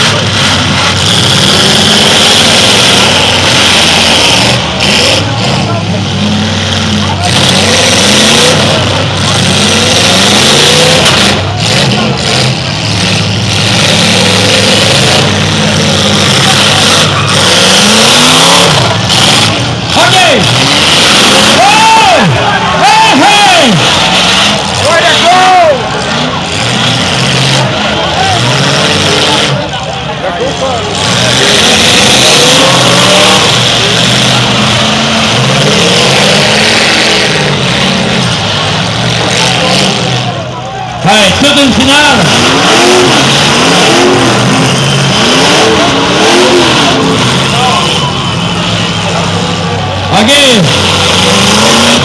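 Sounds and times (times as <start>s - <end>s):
car engines revving hard: 0.0s - 52.0s.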